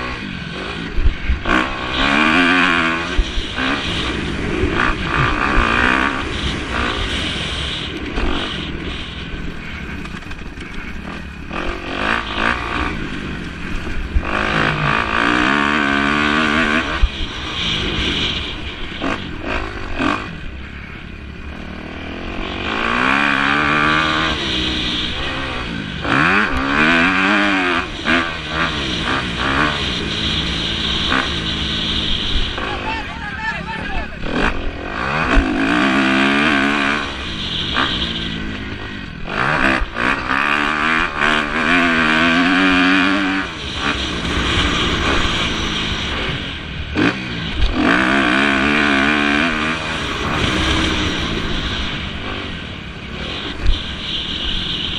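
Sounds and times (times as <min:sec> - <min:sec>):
motocross bikes revving past: 0:00.0 - 0:54.9.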